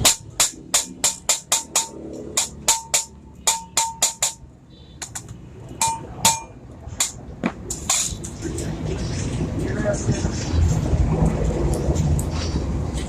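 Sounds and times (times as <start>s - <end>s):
hammer blows on metal: 5.8s - 6.6s.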